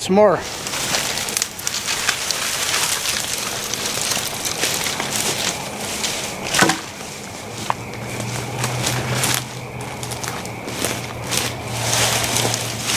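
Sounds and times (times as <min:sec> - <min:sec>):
branches rustling and crackling: 0:00.0 - 0:12.9
loud branch crack: 0:00.4 - 0:12.9
twigs snapping: 0:00.5 - 0:12.9.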